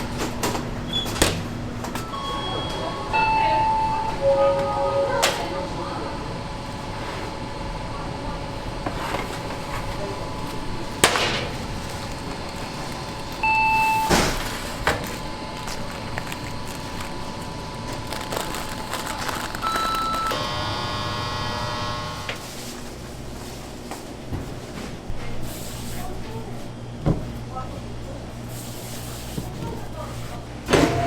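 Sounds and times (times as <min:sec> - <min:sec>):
pitched machine hum: 0:02.0 - 0:22.6
short steady beep: 0:13.4 - 0:14.2.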